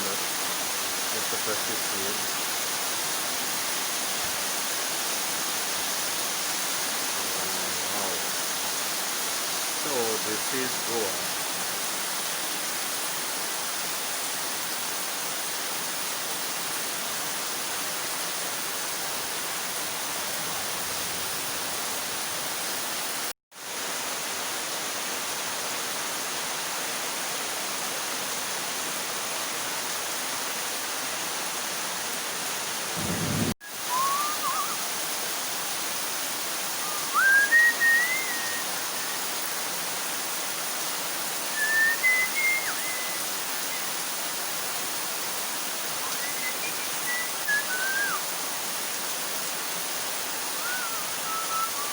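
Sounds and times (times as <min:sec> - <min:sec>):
heavy rain pouring: 0:00.0 - 0:12.2, 0:31.5 - 0:51.9.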